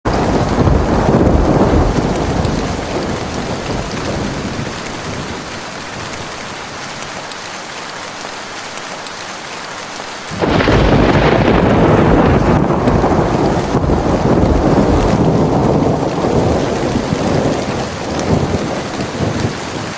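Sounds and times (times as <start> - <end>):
thunder rumbling: 0.1 - 6.8, 10.3 - 19.9
falling rain hiss: 0.1 - 19.9.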